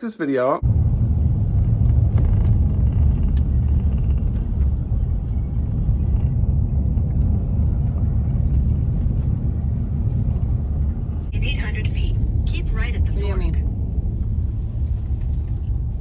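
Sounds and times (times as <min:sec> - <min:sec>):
vehicle rumble from inside cabin: 0:00.6 - 0:16.0
faint clicks and rattles: 0:01.8 - 0:09.4.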